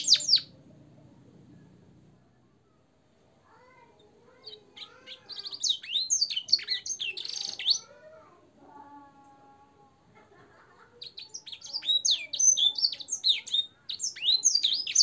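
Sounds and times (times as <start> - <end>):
finch singing: 0.0 - 0.6, 4.0 - 8.0, 11.0 - 15.0.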